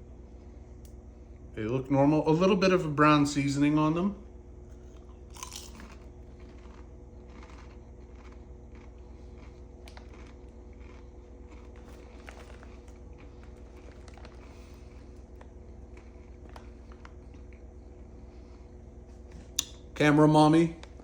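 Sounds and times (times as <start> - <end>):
steady low hum: 0.0 - 21.0
chips being chewed: 4.7 - 19.9.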